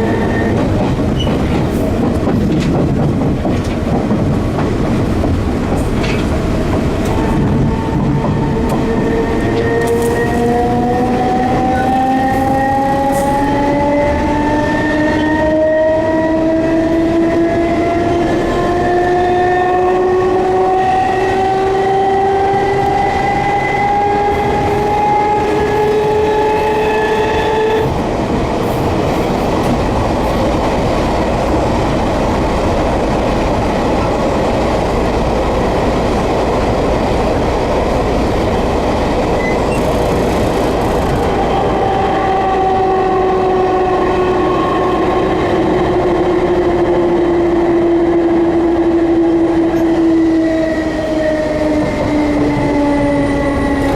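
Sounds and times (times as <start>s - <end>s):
train wheels rumbling on rails: 0.0s - 53.9s
electric train motors whining: 38.7s - 45.8s.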